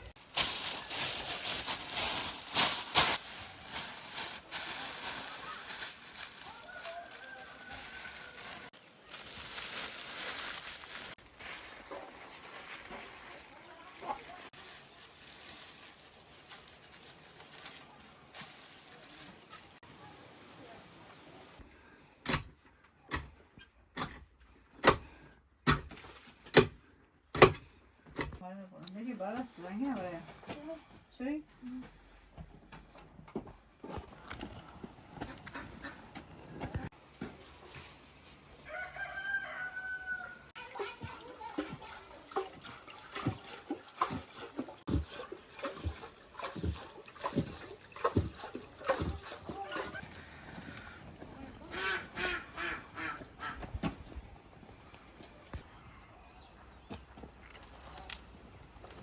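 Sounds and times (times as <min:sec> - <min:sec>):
rooster crowing: 0:06.4 - 0:08.7, 0:38.6 - 0:40.5.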